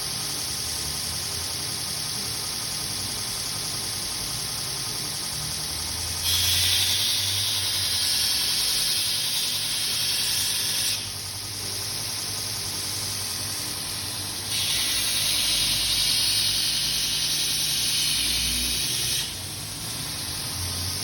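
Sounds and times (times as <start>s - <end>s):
belt grinder running: 5.4s - 21.0s
grinding hiss: 6.2s - 12.5s, 13.2s - 21.0s.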